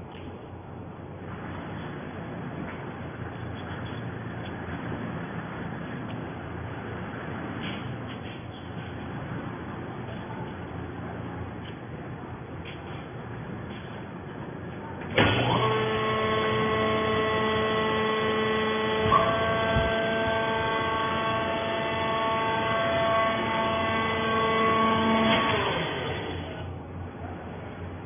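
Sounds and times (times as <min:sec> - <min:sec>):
electric motor machinery hum: 0:15.1 - 0:27.1
machine jolt: 0:15.2 - 0:15.9.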